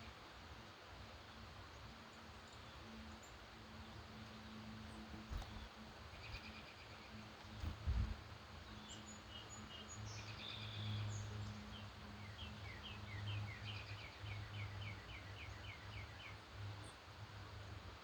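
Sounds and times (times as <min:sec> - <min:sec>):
songbirds singing: 0:01.0 - 0:18.0.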